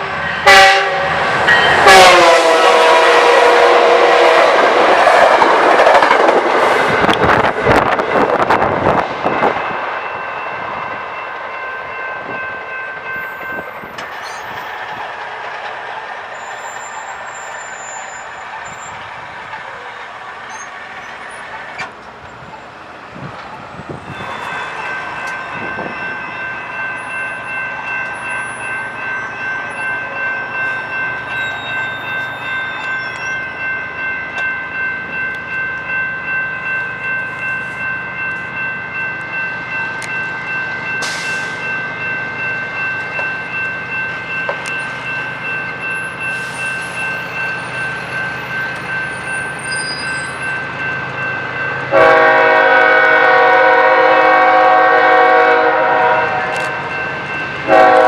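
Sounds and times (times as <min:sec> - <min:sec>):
train horn: 0:00.0 - 0:05.8, 0:51.9 - 0:56.9, 0:57.6 - 0:58.0
crossing warning bells ringing: 0:00.0 - 0:58.0
train wheels clacking on rails: 0:00.0 - 0:58.0.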